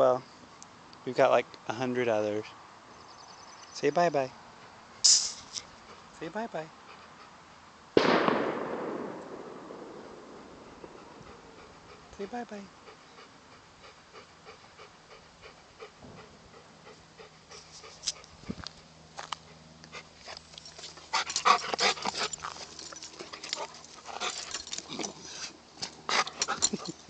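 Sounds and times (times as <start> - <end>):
dog panting: 5.6 - 7.7, 10.5 - 27.0.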